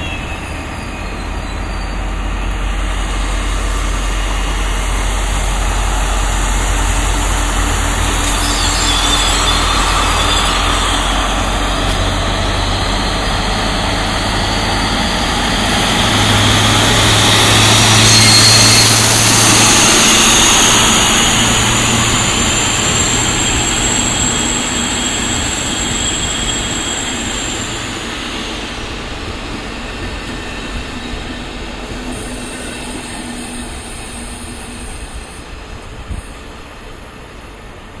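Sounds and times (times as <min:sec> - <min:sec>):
diesel locomotive engine: 0:00.0 - 0:38.0
wheels squealing: 0:08.0 - 0:11.5.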